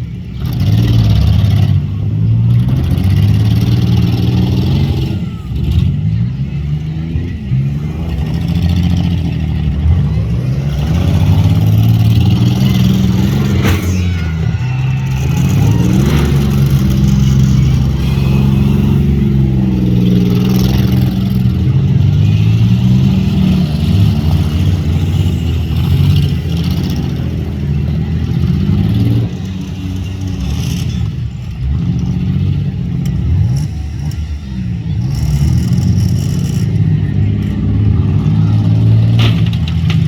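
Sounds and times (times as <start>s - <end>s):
car engines revving: 0.0s - 40.0s
sharp bangs: 10.9s - 17.2s.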